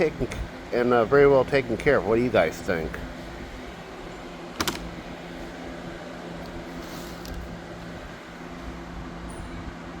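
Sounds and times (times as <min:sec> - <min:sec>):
low mechanical hum: 0:00.0 - 0:10.0
rustles: 0:06.3 - 0:08.8.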